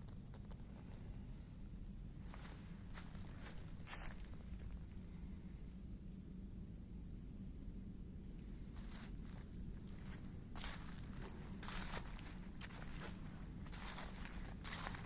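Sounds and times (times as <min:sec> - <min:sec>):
footsteps outdoors: 0:02.2 - 0:05.0, 0:08.7 - 0:15.0
small bird chirps: 0:07.1 - 0:13.0, 0:13.6 - 0:15.0.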